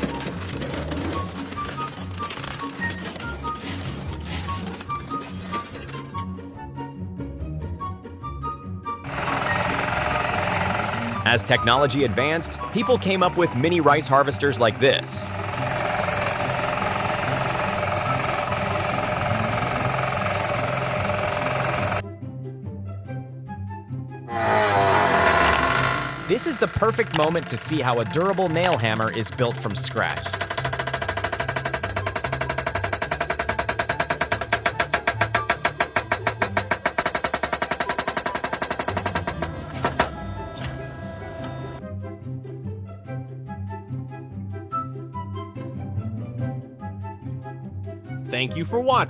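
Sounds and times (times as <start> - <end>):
small harvester engine running: 0.0 - 6.0, 9.0 - 22.0, 24.3 - 41.8
background music with bass: 6.2 - 30.8, 39.3 - 49.0
power hammer striking: 9.0 - 22.0, 24.3 - 40.2.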